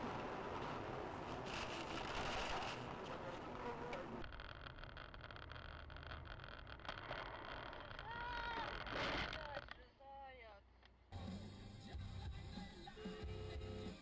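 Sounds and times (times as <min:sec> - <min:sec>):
vehicle road and engine noise: 0:00.0 - 0:04.4
scattered clicks: 0:03.9 - 0:09.9.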